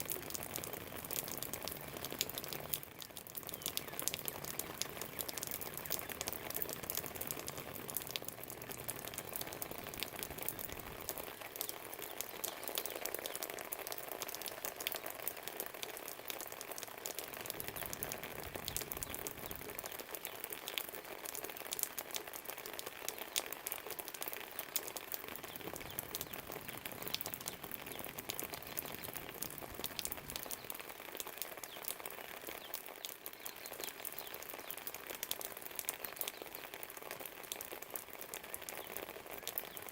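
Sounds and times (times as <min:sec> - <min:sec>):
rain pattering: 0:00.0 - 0:39.9
water drips ticking: 0:00.0 - 0:39.9.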